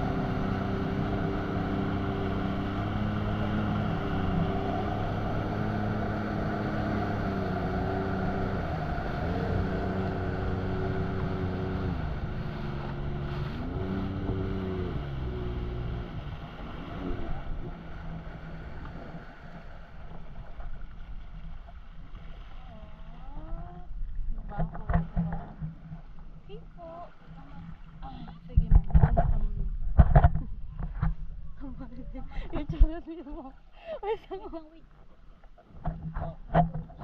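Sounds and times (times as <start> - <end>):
jet ski engine revving: 0.0 - 20.4
wind noise on microphone: 28.4 - 33.0.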